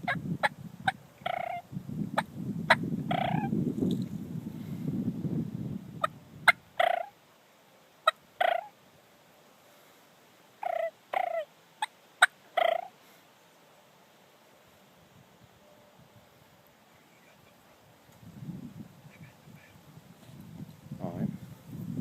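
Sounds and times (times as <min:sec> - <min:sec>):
turkeys gobbling: 0:00.9 - 0:01.6, 0:02.2 - 0:03.5, 0:06.0 - 0:07.2, 0:08.0 - 0:08.8, 0:10.6 - 0:13.0.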